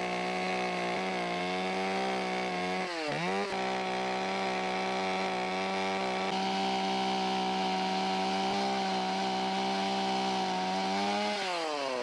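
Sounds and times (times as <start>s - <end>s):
chainsaw cutting wood at full throttle: 0.0s - 12.0s.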